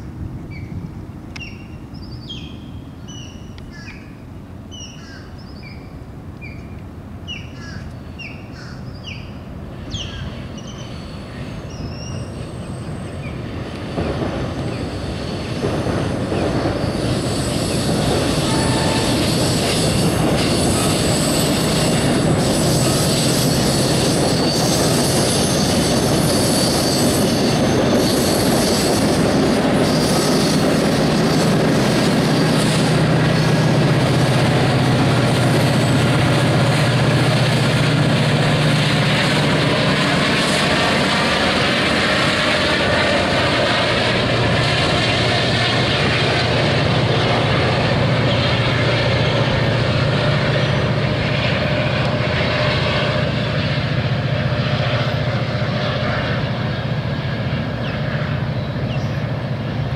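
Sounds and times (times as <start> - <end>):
train rumbling on bridge: 0.0 - 59.9
birds calling: 1.3 - 13.6, 57.8 - 59.3
high-pitched wheel squeal: 16.7 - 29.1.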